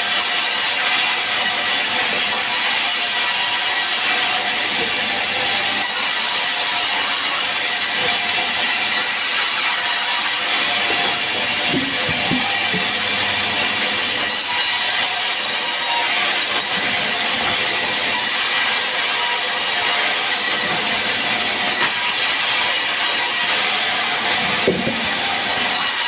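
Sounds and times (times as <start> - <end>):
sawmill saw cutting timber: 0.0 - 26.0.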